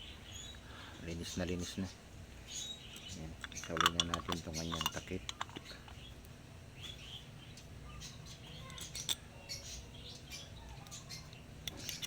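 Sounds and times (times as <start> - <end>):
faint bird chirps: 0.0 - 3.8, 4.4 - 12.0
small metal clicks and taps: 3.0 - 6.0, 10.8 - 12.0.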